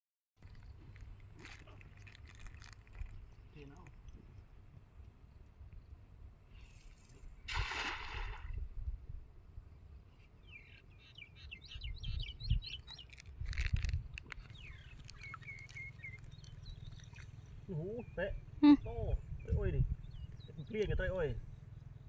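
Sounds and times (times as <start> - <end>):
water splashing: 7.5 - 8.6
small bird chirping: 10.1 - 22.0.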